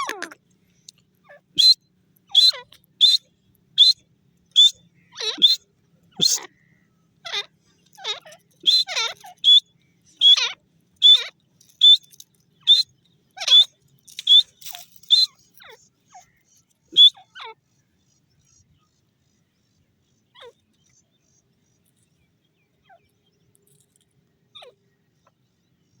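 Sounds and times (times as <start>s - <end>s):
francolin shrill calls: 1.2s - 17.6s.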